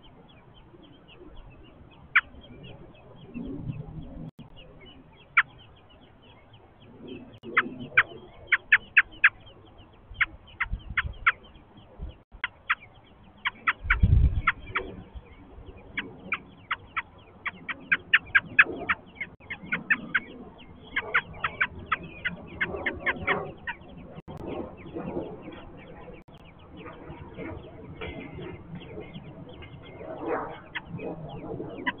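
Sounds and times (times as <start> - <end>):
lower clucking calls: 7.4 - 9.4, 12.3 - 15.0, 16.0 - 23.9
nestlings begging calls: 7.4 - 11.6, 12.3 - 27.4.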